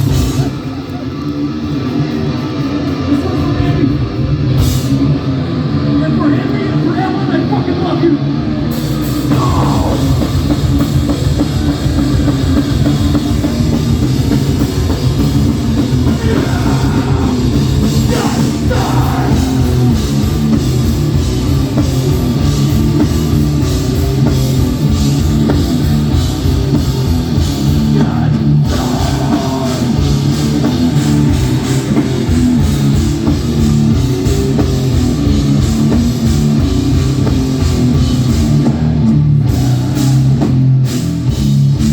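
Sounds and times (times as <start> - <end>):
loud hardcore band: 0.0 - 41.9
person's voice: 16.0 - 19.8.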